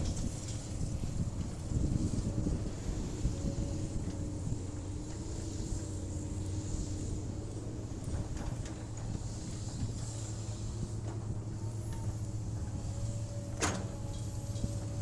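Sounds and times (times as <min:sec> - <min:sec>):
excavator diesel engine droning: 0:00.0 - 0:15.0.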